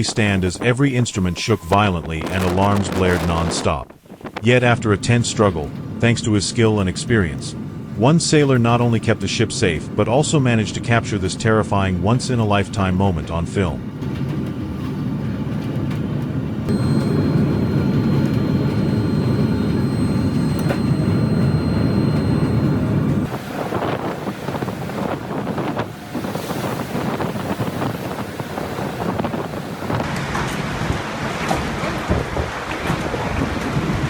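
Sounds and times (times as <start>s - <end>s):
wind buffeting microphone: 0.0s - 11.3s, 22.4s - 31.0s
steady high-pitched tone: 16.7s - 23.6s
waves crashing against ship: 23.3s - 34.0s.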